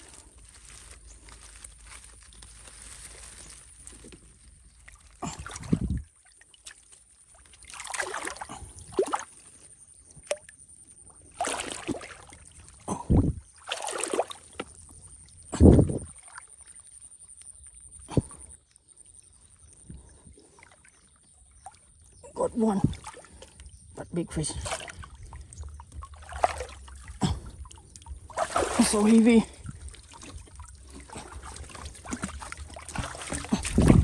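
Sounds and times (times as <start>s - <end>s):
muddy water splashing: 0.0s - 17.1s, 19.8s - 34.0s
heavy low thuds: 25.0s - 28.8s, 29.6s - 34.0s.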